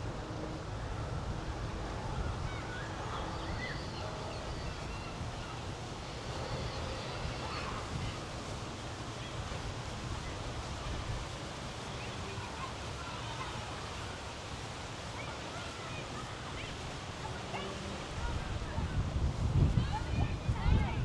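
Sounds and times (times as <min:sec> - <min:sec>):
wind rumbling on microphone: 0:18.1 - 0:21.0.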